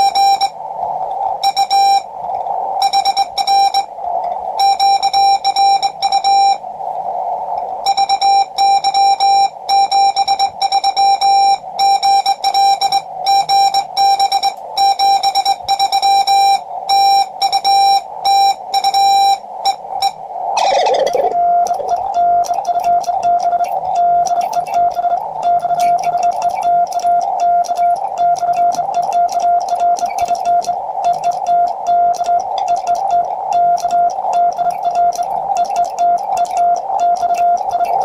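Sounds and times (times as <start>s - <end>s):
lower-pitched morse signal: 0.0s - 0.6s, 1.4s - 2.1s, 2.8s - 3.9s, 4.6s - 6.6s, 7.8s - 38.0s
morse code sidetone beeps: 0.0s - 0.6s, 1.4s - 2.1s, 2.8s - 3.9s, 4.6s - 6.6s, 7.8s - 38.0s
radio band hiss: 11.5s - 38.0s.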